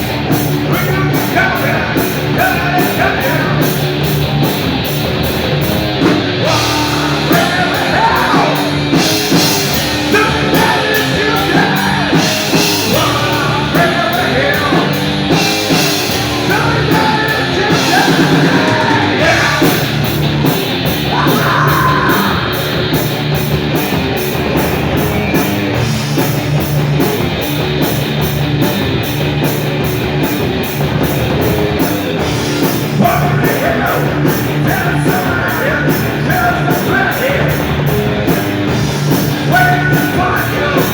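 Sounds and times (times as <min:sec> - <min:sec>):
bass guitar: 0:00.0 - 0:40.9
distorted electric guitar: 0:00.0 - 0:40.9
drums and cymbal hits: 0:00.0 - 0:40.9
person singing and shouting: 0:00.6 - 0:03.8, 0:06.3 - 0:20.2, 0:21.0 - 0:23.0, 0:32.7 - 0:38.5, 0:39.1 - 0:40.9.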